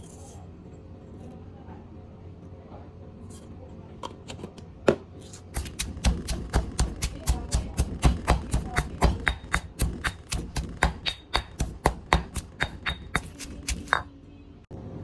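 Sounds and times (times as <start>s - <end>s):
fast chopping thuds: 5.4s - 14.1s.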